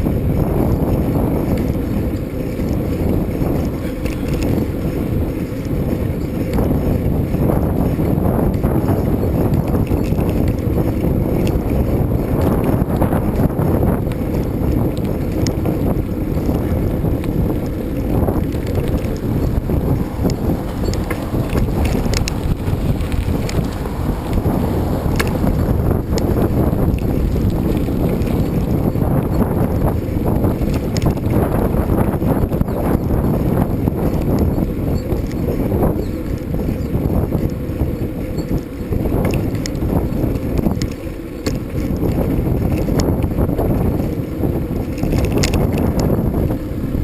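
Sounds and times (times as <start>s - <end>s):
wind buffeting microphone: 0.0s - 47.0s
light clicks and rattles: 18.3s - 24.4s, 44.8s - 46.2s.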